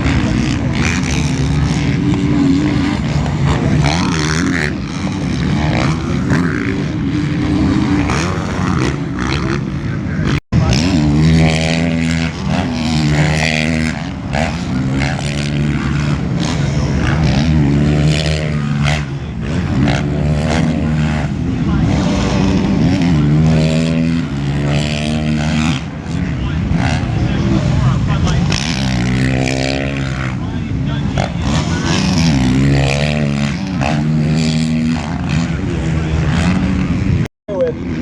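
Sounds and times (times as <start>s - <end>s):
motocross bike engines revving: 0.0s - 38.0s.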